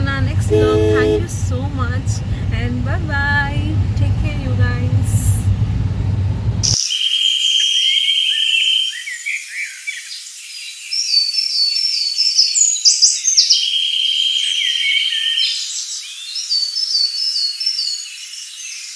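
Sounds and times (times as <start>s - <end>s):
birds chirping: 0.0s - 18.9s
buzzy bird trill: 6.6s - 18.9s.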